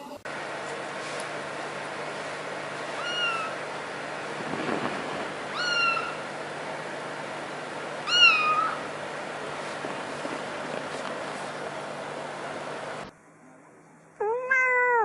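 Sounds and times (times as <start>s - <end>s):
kitten meowing: 3.0s - 3.6s, 5.5s - 6.2s, 8.0s - 8.8s, 14.2s - 15.0s.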